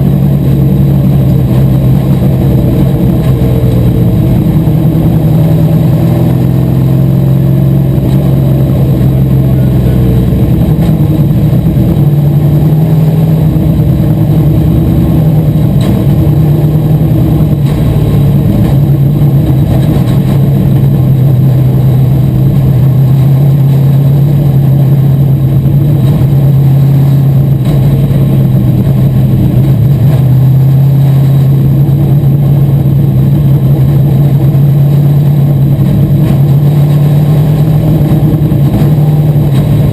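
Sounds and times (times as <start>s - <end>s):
race car engine running: 0.0s - 39.9s.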